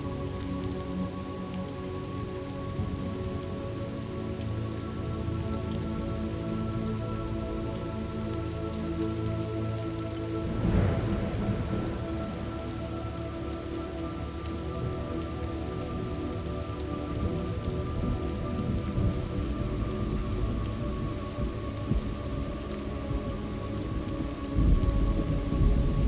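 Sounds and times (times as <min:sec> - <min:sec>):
steady rain: 0:00.0 - 0:26.0
thunder rolling: 0:10.4 - 0:15.0, 0:24.0 - 0:26.0.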